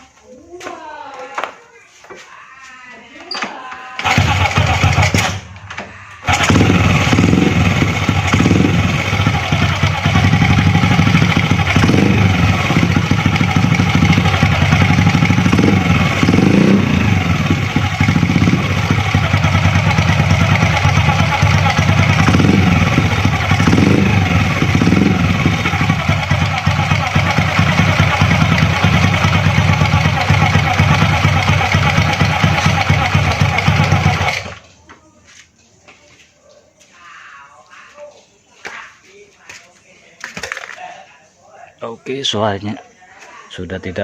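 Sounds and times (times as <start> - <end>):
motorcycle engine idling: 4.0 - 34.8.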